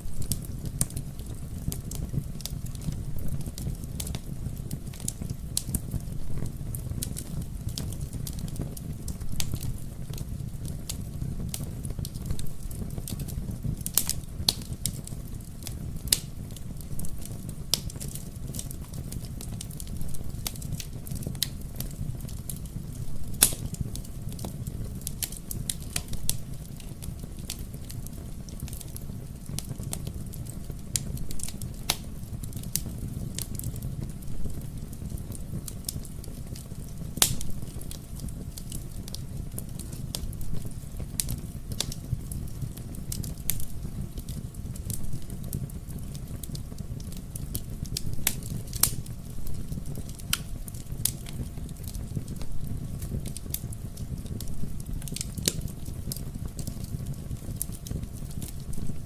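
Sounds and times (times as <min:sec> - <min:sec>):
fire crackling and popping: 0:00.0 - 0:59.0
wood fire burning: 0:00.0 - 0:59.0.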